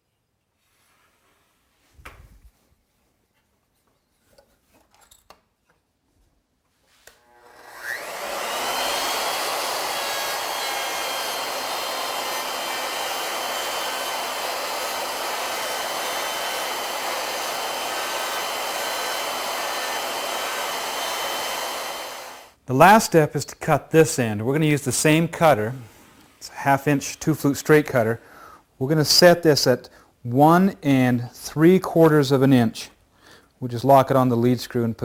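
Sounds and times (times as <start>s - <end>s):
router whining: 7.0s - 22.6s.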